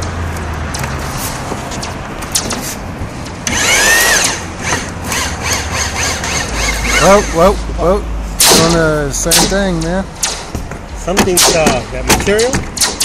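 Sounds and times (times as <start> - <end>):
loud metal screech: 3.5 - 7.6.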